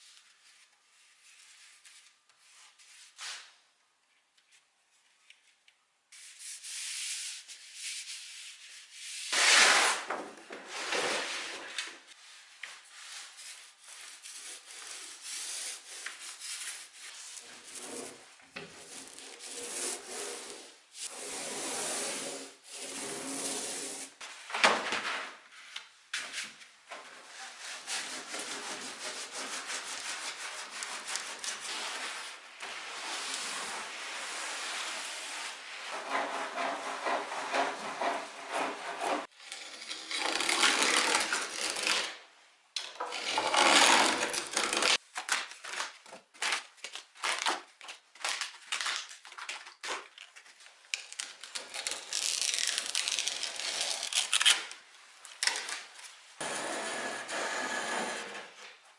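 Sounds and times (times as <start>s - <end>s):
rasping on wood by hand: 35.9s - 39.3s.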